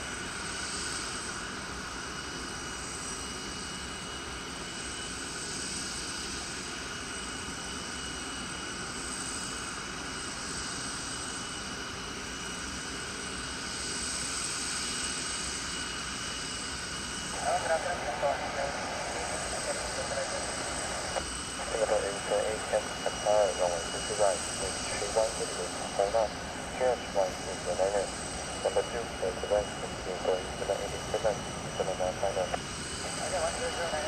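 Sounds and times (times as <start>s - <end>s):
jet engines whining: 17.1s - 34.0s.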